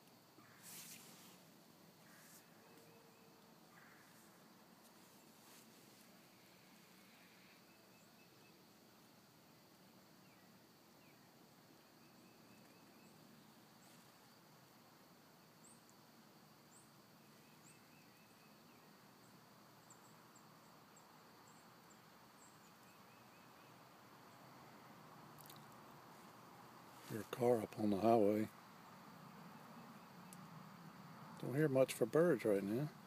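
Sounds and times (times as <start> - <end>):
distant bird trills: 2.0 - 4.4.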